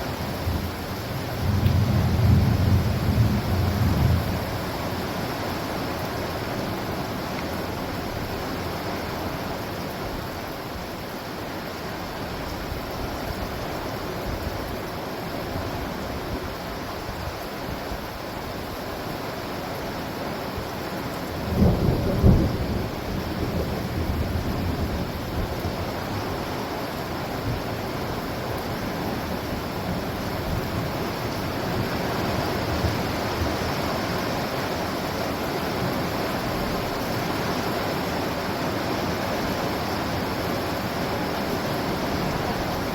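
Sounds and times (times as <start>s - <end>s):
steady rain: 0.0s - 42.9s
rumbling thunderclap: 1.4s - 4.5s.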